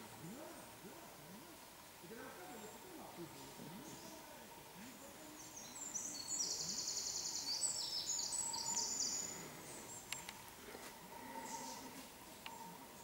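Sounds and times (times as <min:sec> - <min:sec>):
songbird trilling: 0:05.4 - 0:10.2.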